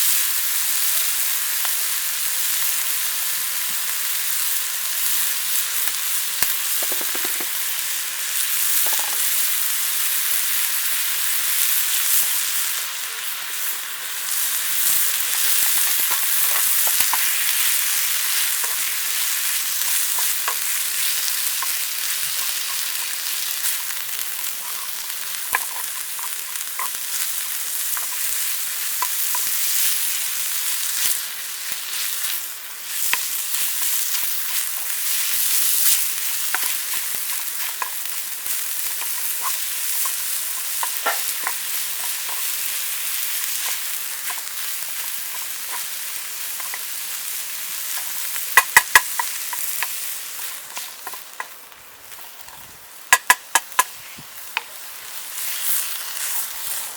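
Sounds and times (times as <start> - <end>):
food sizzling in a pan: 0.0 - 56.9
utensil clicking against pan: 6.7 - 7.6, 15.3 - 18.9, 19.8 - 27.3, 35.8 - 42.6, 47.9 - 51.6, 53.1 - 53.9.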